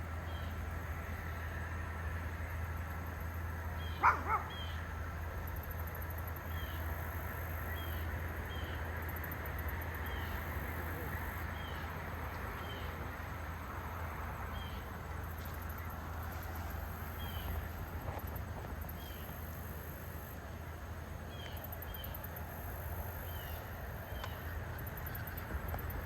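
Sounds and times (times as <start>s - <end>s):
insects trilling: 3.1s - 26.0s
bird calling: 3.8s - 4.8s.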